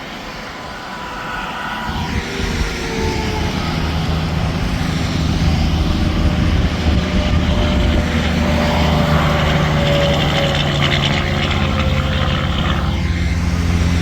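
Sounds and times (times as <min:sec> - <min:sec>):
diesel truck engine drone: 0:01.2 - 0:14.0
tyre and road noise: 0:01.8 - 0:14.0.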